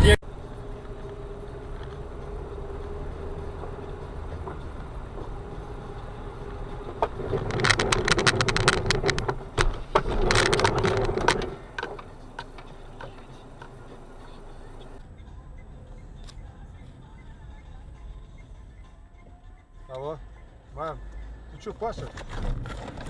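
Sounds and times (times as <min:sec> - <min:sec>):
low vehicle hum: 0:00.0 - 0:23.0
loud clattering and knocking: 0:07.0 - 0:12.0.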